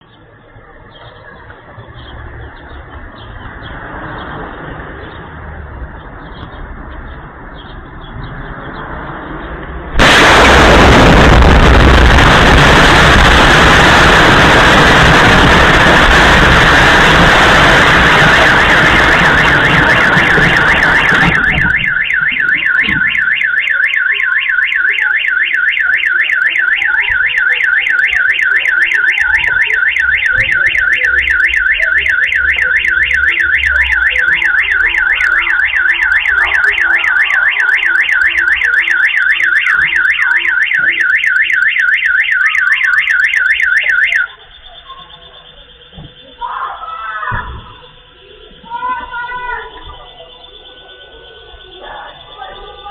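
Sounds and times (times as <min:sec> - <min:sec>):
car alarm warbling: 0:09.9 - 0:52.9
loud explosion roar: 0:10.0 - 0:23.4.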